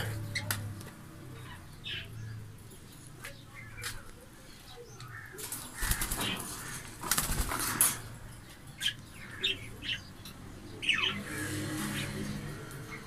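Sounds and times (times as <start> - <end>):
birds flapping wings: 5.4 - 8.2.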